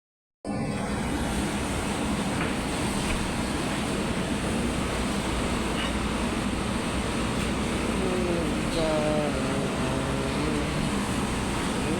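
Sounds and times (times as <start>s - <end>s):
rushing mechanical noise: 0.5s - 11.9s.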